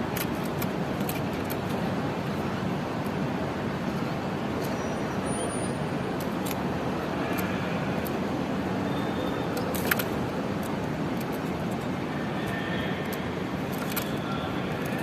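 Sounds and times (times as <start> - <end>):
road traffic hum: 0.0 - 15.0.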